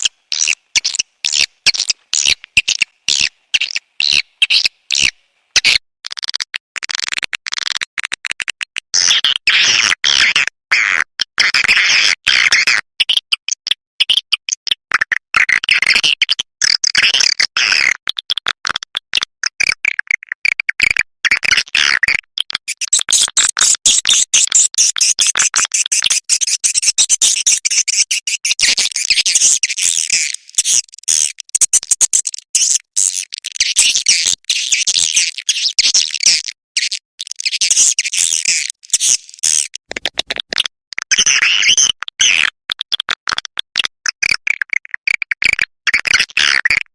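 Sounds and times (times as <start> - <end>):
swiftlets twittering and chirping: 0.0 - 5.1, 28.9 - 40.0.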